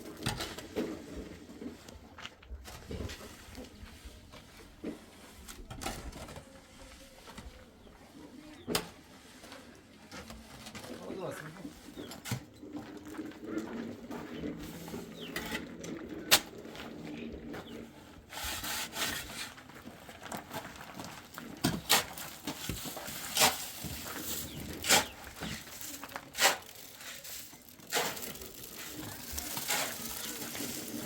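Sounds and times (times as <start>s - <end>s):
metal tool scraping wet mortar: 18.3s - 19.6s, 21.5s - 31.0s.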